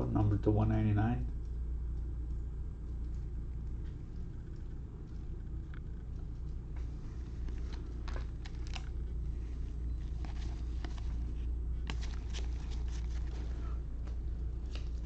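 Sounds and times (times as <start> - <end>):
steady low hum: 0.0 - 15.0
cards being flipped through: 7.4 - 15.0.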